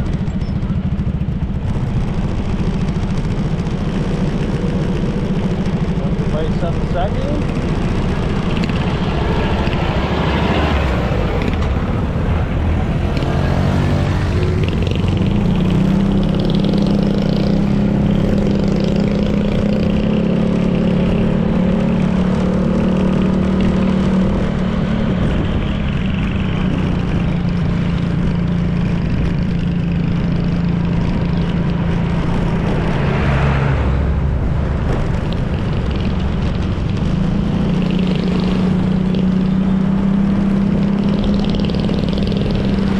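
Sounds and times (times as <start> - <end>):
scooter engine running: 0.0 - 42.9
wind and road noise: 0.0 - 42.9.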